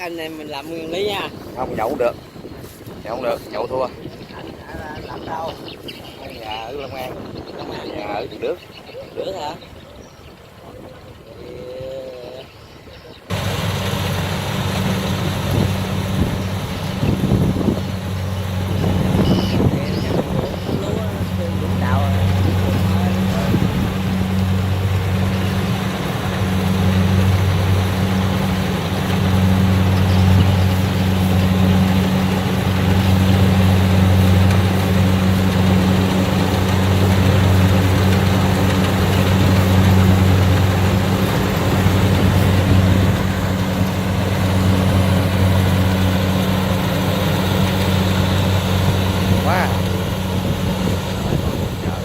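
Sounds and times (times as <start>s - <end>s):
harvester diesel engine drone: 13.3s - 52.0s
mechanical rattle and rush: 13.3s - 52.0s.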